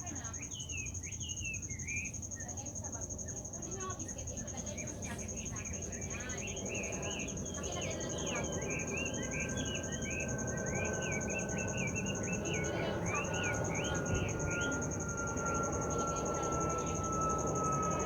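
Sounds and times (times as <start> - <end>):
insect trilling: 0.0 - 18.0
bird chirping: 5.2 - 18.0.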